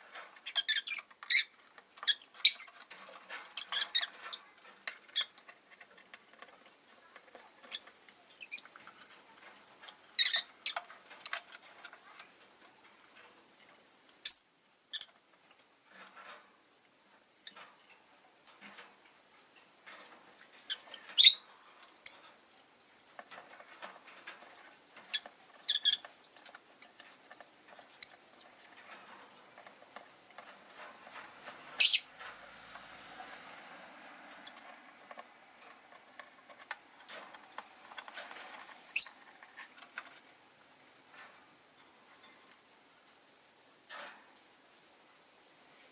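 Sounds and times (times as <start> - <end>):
clicks and rustling in cage: 0.0 - 14.2, 14.9 - 44.8
lovebirds chirping: 14.2 - 15.1, 20.7 - 21.5, 31.8 - 32.2, 38.9 - 39.2.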